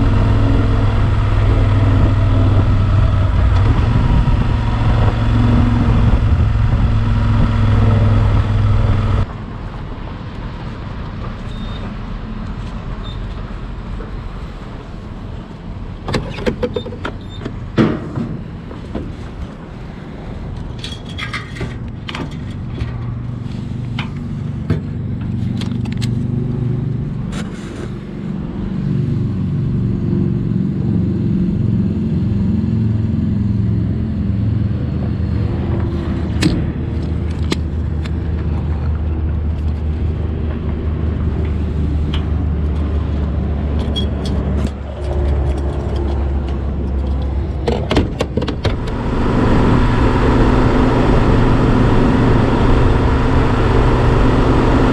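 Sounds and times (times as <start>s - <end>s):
motorcycle engine running: 0.0s - 9.4s, 48.6s - 54.9s
short clicks and scrapes: 27.3s - 28.0s.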